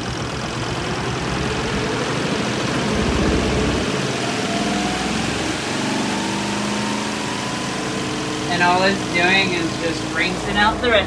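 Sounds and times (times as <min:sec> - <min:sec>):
thin rising whine: 0:00.0 - 0:11.0
washing machine motor hum: 0:00.0 - 0:11.0.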